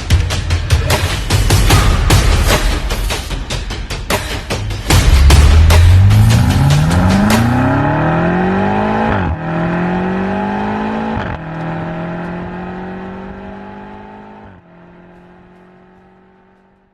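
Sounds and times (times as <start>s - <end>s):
car engine accelerating through gears: 5.2s - 16.9s.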